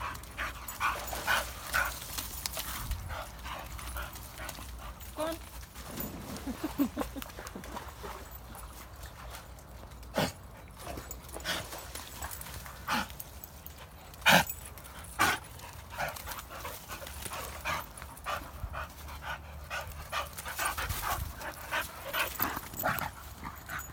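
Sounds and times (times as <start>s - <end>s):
dog panting: 0.0s - 5.5s, 14.2s - 23.9s.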